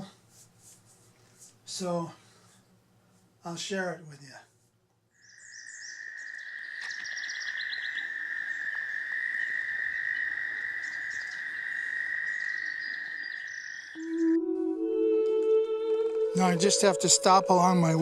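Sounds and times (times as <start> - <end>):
songbirds trilling and chirping: 5.1 - 14.4
high-pitched animal drone: 13.9 - 18.0.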